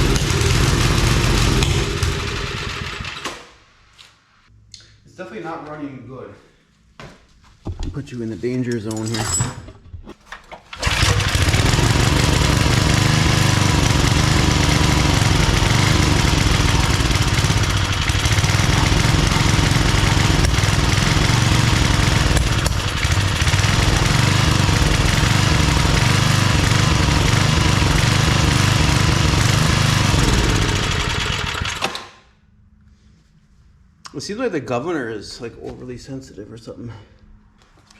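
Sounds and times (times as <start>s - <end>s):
small engine running rough: 0.0s - 3.2s, 10.8s - 32.0s
man talking: 5.0s - 6.5s, 7.8s - 9.3s, 34.1s - 37.1s.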